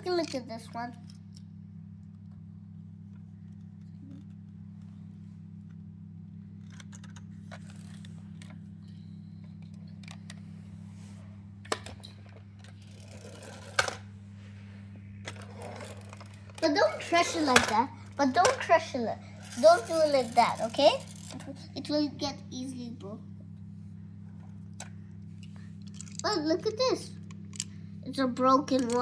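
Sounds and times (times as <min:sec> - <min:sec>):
toy cars clicking and rattling: 0:00.0 - 0:01.2, 0:12.6 - 0:14.0, 0:15.3 - 0:22.0, 0:25.8 - 0:27.7, 0:28.4 - 0:29.0
steady low hum: 0:00.0 - 0:29.0.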